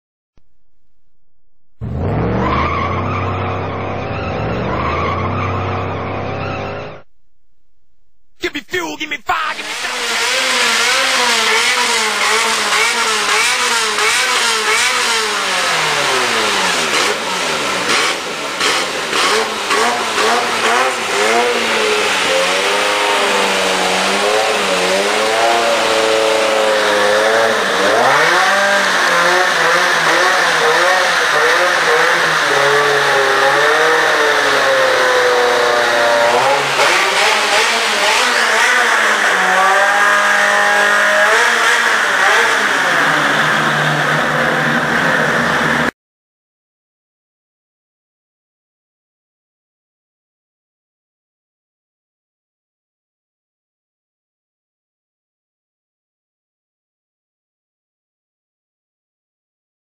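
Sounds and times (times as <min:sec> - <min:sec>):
car engine revving: 0:00.4 - 0:08.4, 0:09.5 - 0:45.9.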